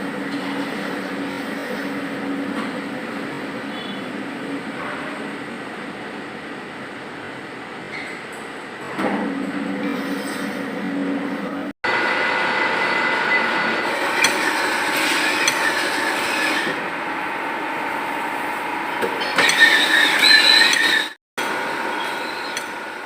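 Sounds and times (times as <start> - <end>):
machine running with high whine: 9.7 - 23.0.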